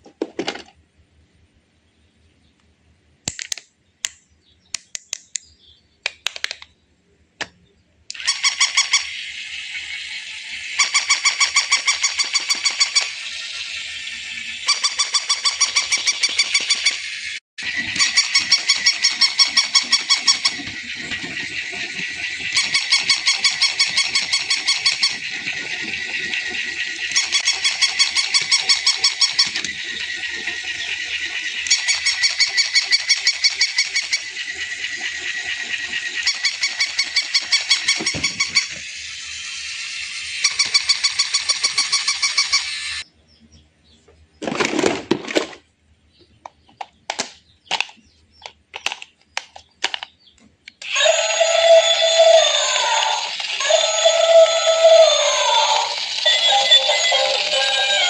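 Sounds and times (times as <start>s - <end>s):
toy buzzy honking tone: 8.2s - 17.1s, 17.7s - 21.2s, 22.4s - 38.8s, 40.1s - 43.0s, 50.8s - 58.0s.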